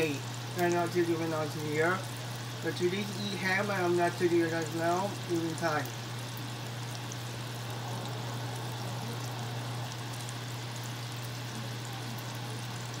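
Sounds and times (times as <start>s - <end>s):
ham sizzling in oil: 0.0s - 13.0s
low hum: 5.8s - 13.0s.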